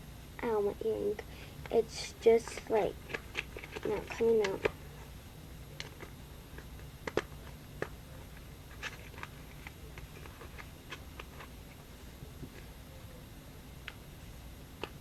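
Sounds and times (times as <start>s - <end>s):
faint steady low hum: 0.0s - 15.0s.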